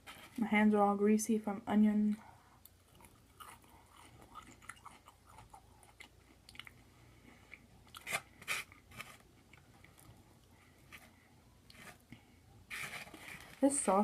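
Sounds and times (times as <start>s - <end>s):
chewing crunchy onion rings: 2.6s - 10.5s.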